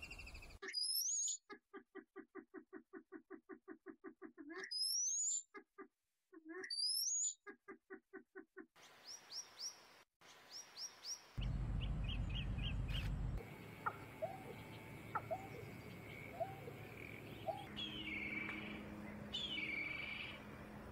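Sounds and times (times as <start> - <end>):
soft bird chirps: 8.8 - 20.5
low rumble: 11.4 - 13.4
rapid low pulsed bird calls: 11.4 - 20.4.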